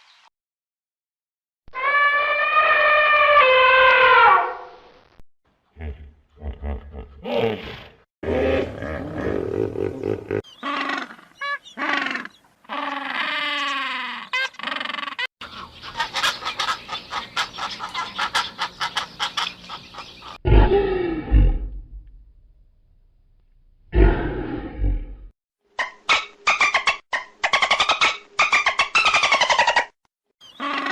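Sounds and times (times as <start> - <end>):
animal calls: 5.8 - 20.8, 25.8 - 30.9.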